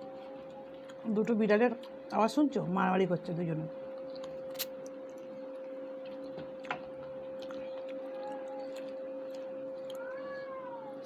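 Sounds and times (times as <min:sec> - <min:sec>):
steady hum: 0:00.0 - 0:11.0
cat yowl: 0:09.8 - 0:11.0
cats fighting: 0:09.9 - 0:11.0.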